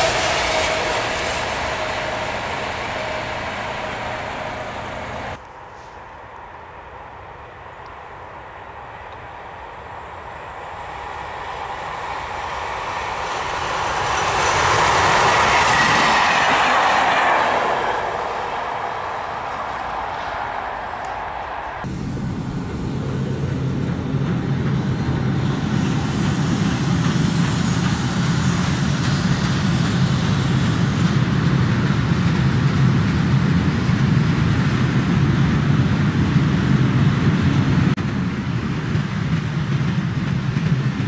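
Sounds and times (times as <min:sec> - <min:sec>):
locomotive low hum: 0:00.0 - 0:05.8, 0:07.6 - 0:41.0
wagons rumbling on rails: 0:00.0 - 0:41.0.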